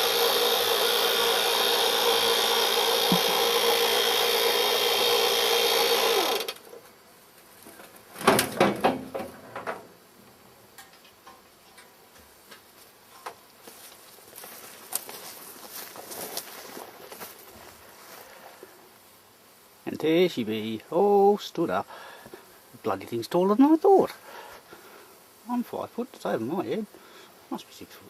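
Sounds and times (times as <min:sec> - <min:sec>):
electric winch motor whirring: 0:00.0 - 0:06.7
knocks and rattles: 0:08.2 - 0:09.9.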